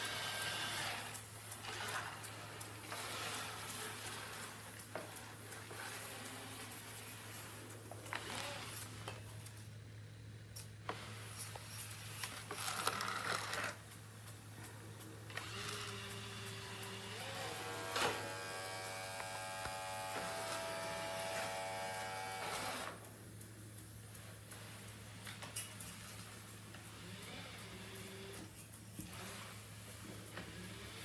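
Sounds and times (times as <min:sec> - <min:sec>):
robot vacuum motor buzzing: 0:15.3 - 0:23.0.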